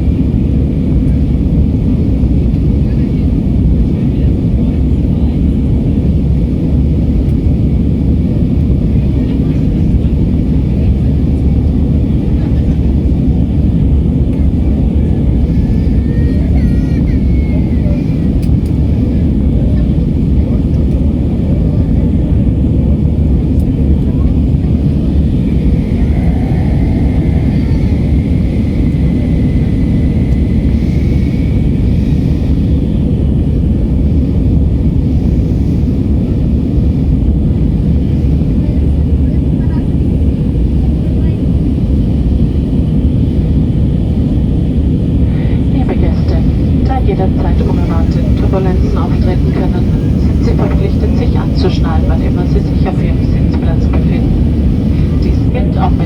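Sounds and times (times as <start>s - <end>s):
aircraft cabin engine rumble: 0.0s - 56.0s
faint steady whine: 14.3s - 39.8s, 40.4s - 56.0s.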